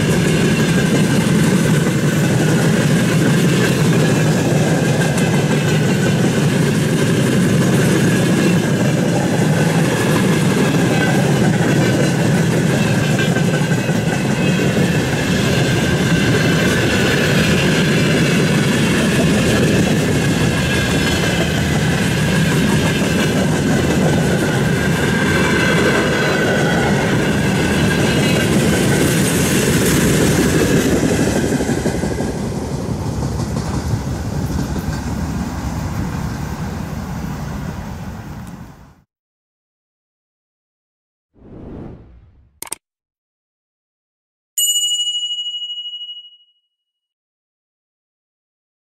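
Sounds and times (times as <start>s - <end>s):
train wagons rolling on rails: 0.0s - 38.6s.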